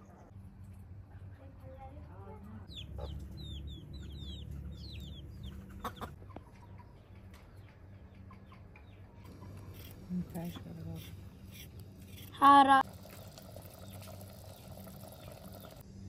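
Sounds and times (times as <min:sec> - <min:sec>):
birds chirping: 0:02.6 - 0:11.0, 0:13.0 - 0:15.8.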